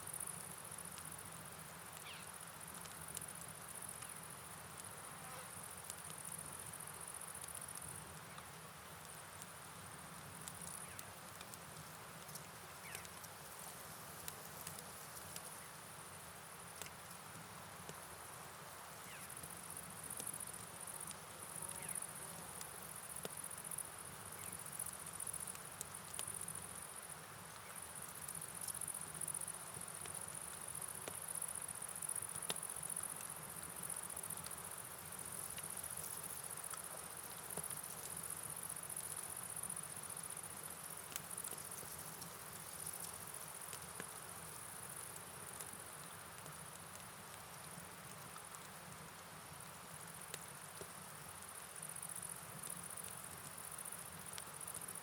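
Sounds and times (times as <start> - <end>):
rain hiss: 0.0 - 55.0
light ticks: 1.9 - 4.2, 10.4 - 15.6, 16.8 - 17.2, 24.4 - 26.6, 27.5 - 33.3, 35.4 - 38.3, 41.1 - 44.2, 45.0 - 48.8
crickets chirping: 18.2 - 55.0.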